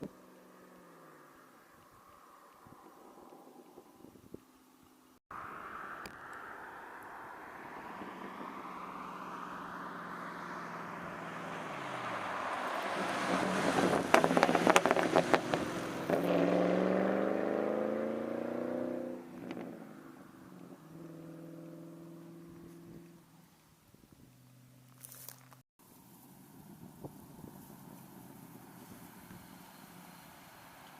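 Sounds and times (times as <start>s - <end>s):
car engine exhaust revving: 8.2s - 19.9s.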